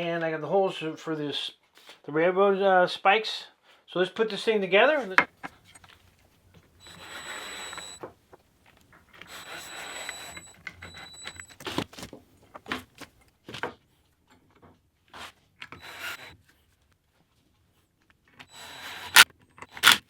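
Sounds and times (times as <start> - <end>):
sharp knocks: 5.1 - 5.6
power drill whining: 6.6 - 12.0, 15.6 - 16.4, 18.4 - 20.0.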